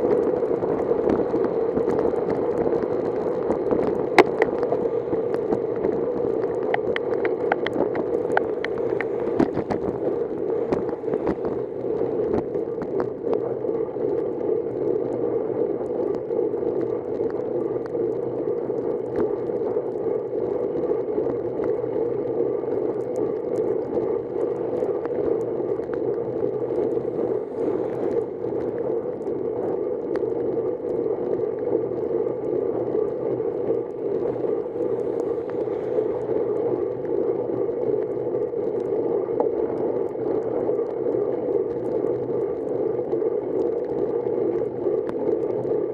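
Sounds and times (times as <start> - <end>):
road and wind noise: 1.0 - 13.2
bicycle ticks and rattles: 3.7 - 10.0.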